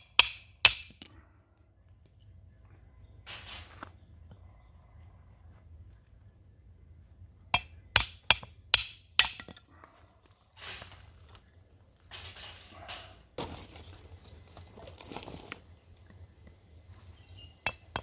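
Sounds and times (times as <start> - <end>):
rustling and scraping: 3.3 - 4.0, 9.7 - 15.9.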